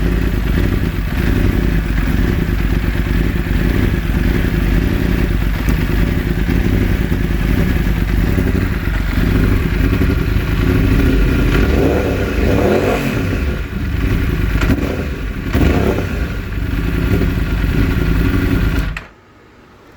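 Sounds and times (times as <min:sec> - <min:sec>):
motorcycle engine misfiring: 0:00.0 - 0:19.1
motorcycle engine revving: 0:00.0 - 0:19.1.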